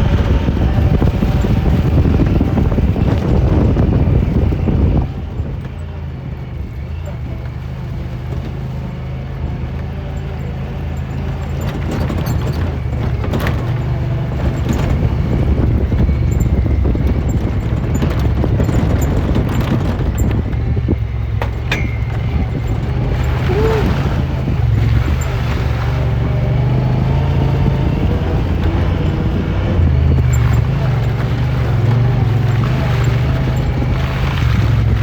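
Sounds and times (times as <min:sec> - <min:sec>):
ride noise: 0:00.0 - 0:35.0
utility vehicle engine drone: 0:00.0 - 0:35.0
short knocks: 0:11.5 - 0:25.2.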